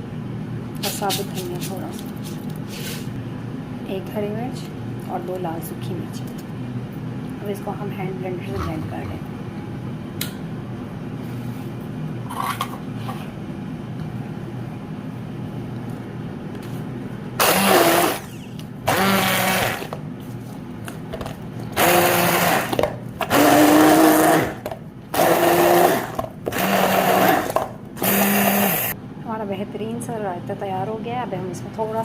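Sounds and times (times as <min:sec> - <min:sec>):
hand blender running: 0:17.4 - 0:20.0, 0:21.8 - 0:29.0.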